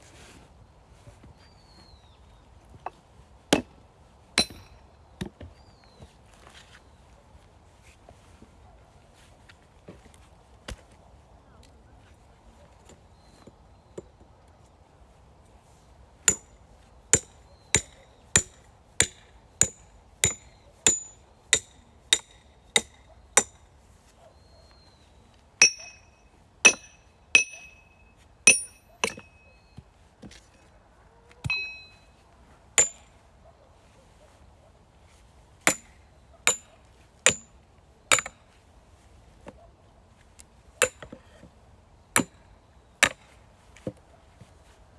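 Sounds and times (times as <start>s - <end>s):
hammer striking metal: 4.4s - 4.8s, 25.6s - 26.1s, 26.7s - 27.9s, 28.5s - 29.4s, 31.4s - 32.0s.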